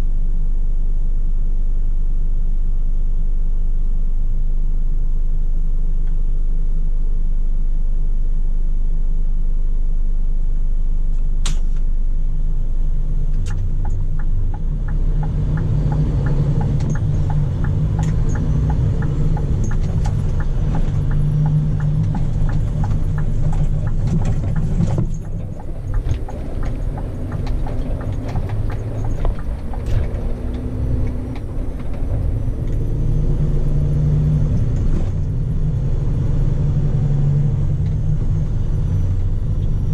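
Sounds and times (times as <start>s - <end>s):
diesel truck engine rumbling: 12.1s - 39.9s
regular clicks: 13.3s - 32.8s.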